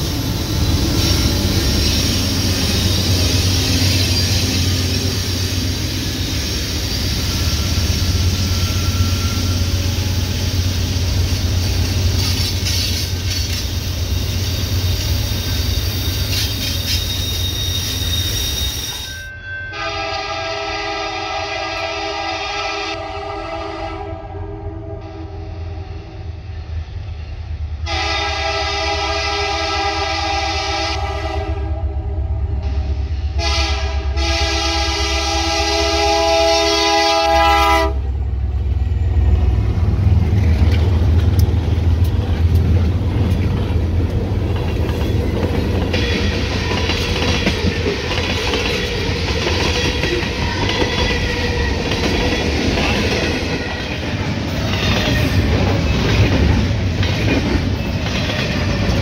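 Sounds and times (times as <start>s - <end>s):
train air horn blasts: 15.8s - 26.5s, 27.8s - 38.2s
locomotive engine rumble: 34.3s - 49.6s.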